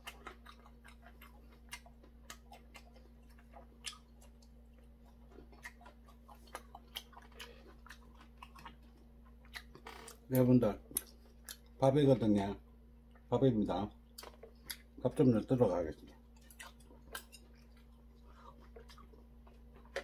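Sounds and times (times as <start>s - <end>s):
person chewing food: 0.0s - 11.8s, 14.1s - 15.0s, 16.0s - 20.0s
low steady hum: 0.0s - 20.0s.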